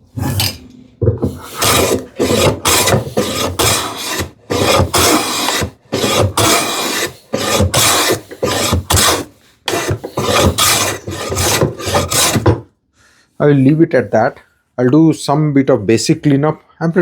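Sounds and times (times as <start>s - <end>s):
hand plane cutting wood shavings: 1.2s - 12.6s.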